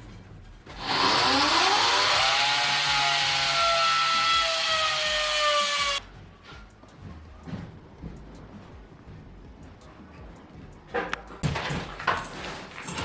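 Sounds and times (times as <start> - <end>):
electric power saw cutting: 0.8 - 6.0.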